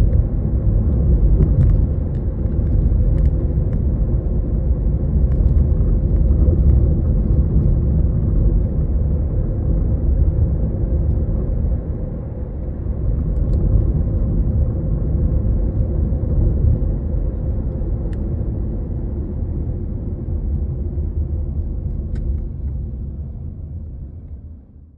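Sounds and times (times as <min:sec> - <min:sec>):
road and engine rumble: 0:00.0 - 0:24.9.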